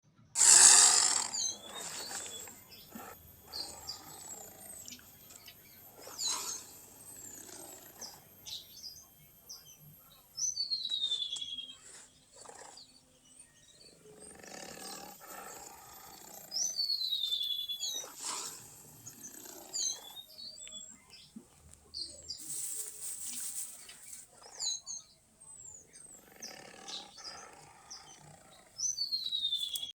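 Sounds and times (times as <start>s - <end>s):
rough animal calls: 0.4s - 9.2s, 13.8s - 20.9s, 25.8s - 29.9s.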